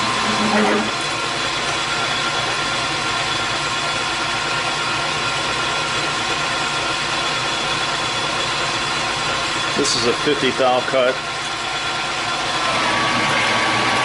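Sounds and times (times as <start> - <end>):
high steady whine: 0.0 - 4.4, 9.0 - 14.0
lathe motor and gear hum: 0.0 - 14.0.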